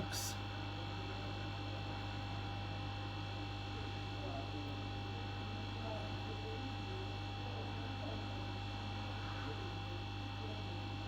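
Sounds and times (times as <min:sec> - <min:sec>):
electrical mains hum: 0:00.0 - 0:01.8.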